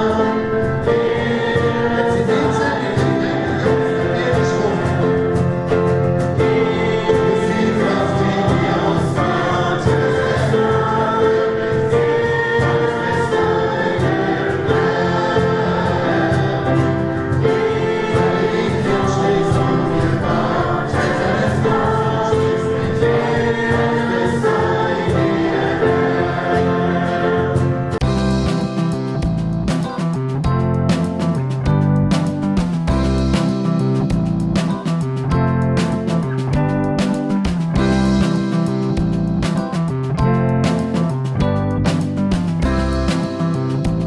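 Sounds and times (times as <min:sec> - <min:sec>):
group singing worship song: 0:00.0 - 0:28.8
instrumental accompaniment: 0:00.0 - 0:44.0.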